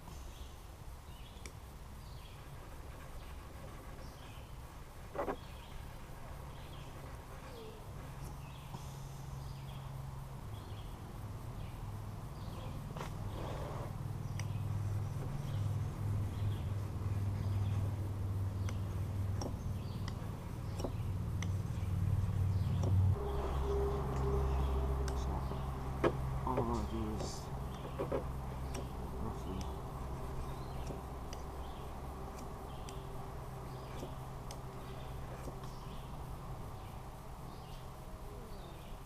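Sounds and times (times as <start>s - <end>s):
faint bird chirps: 5.2s - 39.0s
steady low drone: 8.4s - 39.0s.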